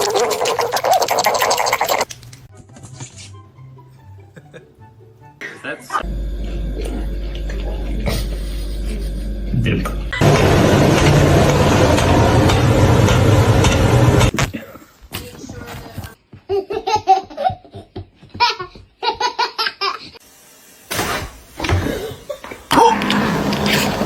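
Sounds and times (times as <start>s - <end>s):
laughter in bursts: 4.2s - 4.8s, 8.0s - 9.5s, 16.5s - 20.2s.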